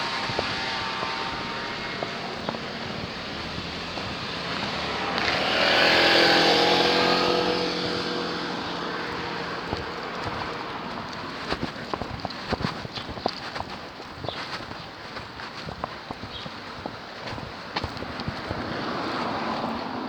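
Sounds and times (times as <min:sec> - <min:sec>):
vehicle driving past: 0:00.0 - 0:11.2
street traffic noise: 0:00.0 - 0:20.0.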